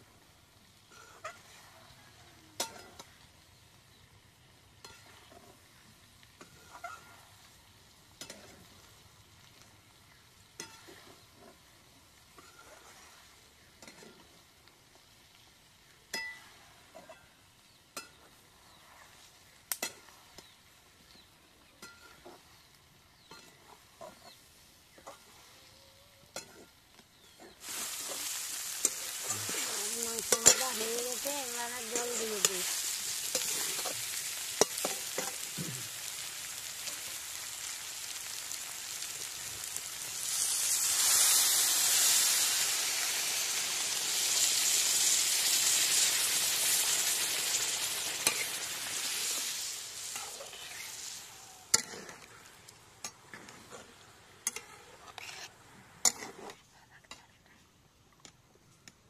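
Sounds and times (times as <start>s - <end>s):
chicken frying in a wok: 0.0s - 57.2s
spatula scraping a pan: 12.3s - 14.3s, 26.3s - 38.2s, 47.8s - 52.3s, 53.1s - 57.3s
water poured into hot pan: 27.6s - 51.9s
hiss of steam: 27.6s - 52.4s.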